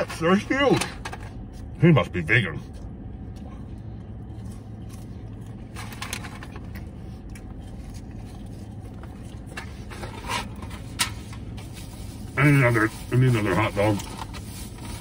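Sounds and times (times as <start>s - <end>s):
low car interior hum: 0.0s - 15.0s
man chewing fries: 1.3s - 15.0s
food packaging rustling: 4.2s - 15.0s.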